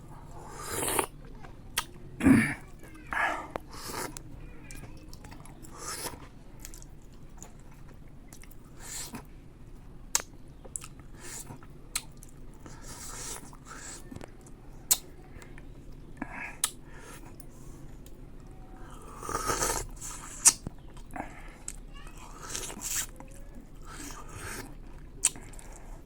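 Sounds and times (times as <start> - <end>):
person chewing: 0.3 - 1.1, 3.3 - 9.3, 10.1 - 15.1, 18.8 - 26.0.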